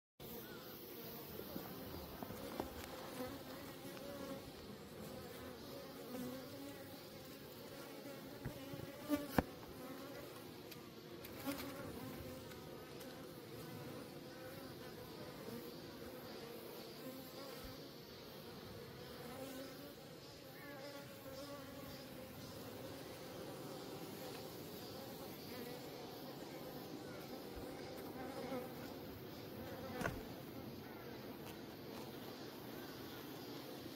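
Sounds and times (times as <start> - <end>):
honeybees buzzing: 0.2 - 33.9.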